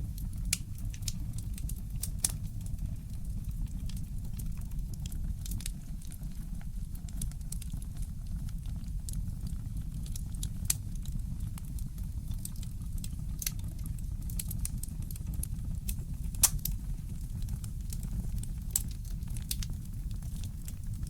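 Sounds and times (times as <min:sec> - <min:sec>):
wood fire crackling and popping: 0:00.0 - 0:21.0
steady low rumble: 0:15.1 - 0:21.0.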